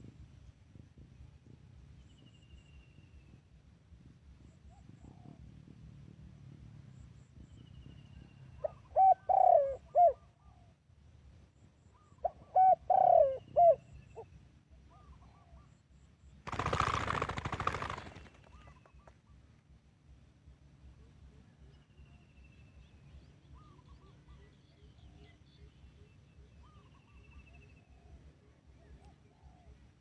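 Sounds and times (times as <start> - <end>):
dove cooing: 8.6 - 10.6, 12.0 - 13.9.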